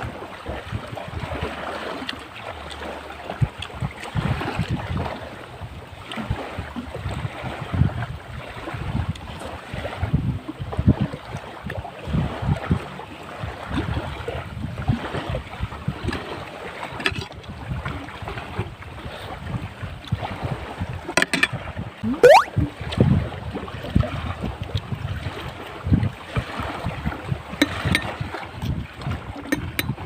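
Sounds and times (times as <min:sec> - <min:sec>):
surf at the shore: 0:00.0 - 0:30.0
wind buffeting microphone: 0:03.3 - 0:16.5, 0:17.4 - 0:30.0.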